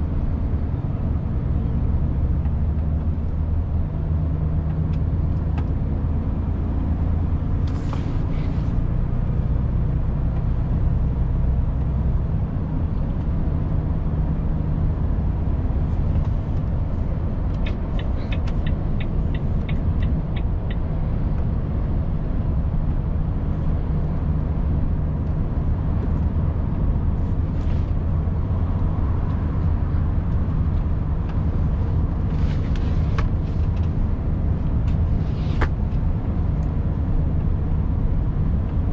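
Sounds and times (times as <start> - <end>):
turn signal ticking: 16.1 - 21.5.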